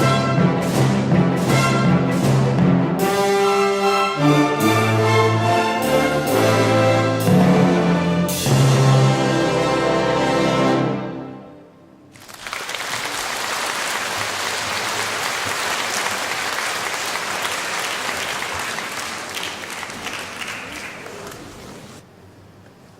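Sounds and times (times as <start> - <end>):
audience applauding: 12.1 - 22.0.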